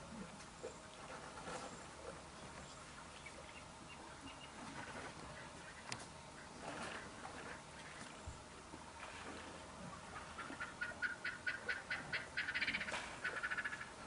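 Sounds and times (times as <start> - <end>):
bird calling sharp repeated notes: 10.3 - 14.0.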